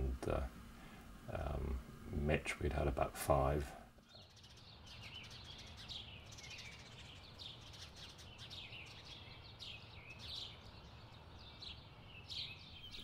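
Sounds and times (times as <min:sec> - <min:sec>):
faint bird chirps: 0:04.0 - 0:13.0.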